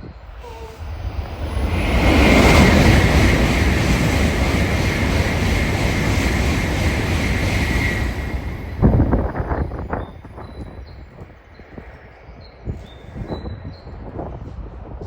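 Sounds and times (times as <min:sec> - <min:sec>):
train rushing past: 0:00.2 - 0:11.0.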